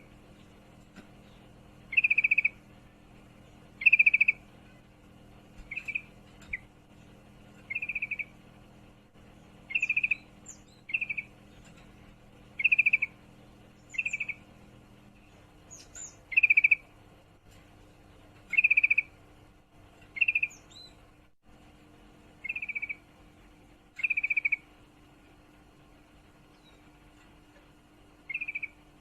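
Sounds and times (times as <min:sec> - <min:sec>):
bird trilling: 0:01.9 - 0:02.7, 0:03.8 - 0:04.8, 0:05.6 - 0:06.8, 0:07.6 - 0:08.4, 0:09.6 - 0:11.4, 0:12.5 - 0:13.2, 0:13.8 - 0:14.5, 0:15.7 - 0:16.9, 0:18.5 - 0:19.2, 0:20.1 - 0:21.0, 0:22.4 - 0:23.1, 0:23.9 - 0:24.7, 0:28.2 - 0:28.8.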